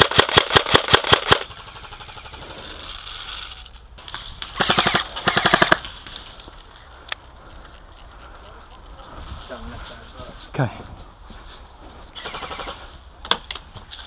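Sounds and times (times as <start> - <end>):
airsoft gun automatic bursts: 0.0 - 3.6, 4.6 - 5.9, 12.2 - 12.8.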